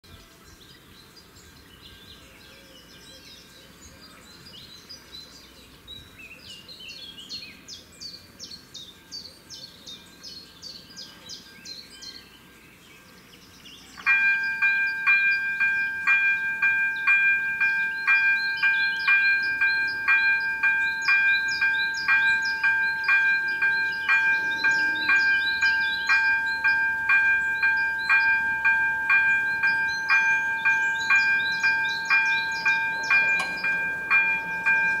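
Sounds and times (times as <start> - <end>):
birds chirping and singing: 0.1 - 35.0
level crossing warning bell: 14.0 - 35.0.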